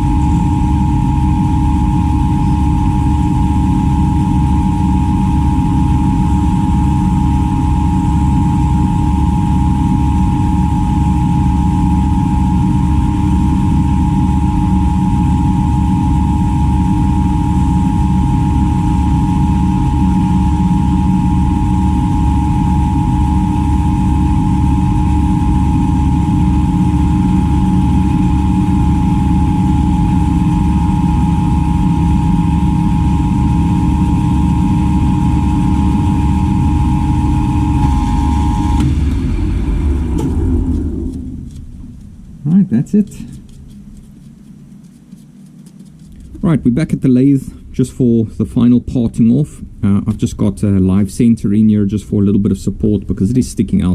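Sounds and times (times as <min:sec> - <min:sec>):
milling machine humming and whining: 0:00.0 - 0:42.6.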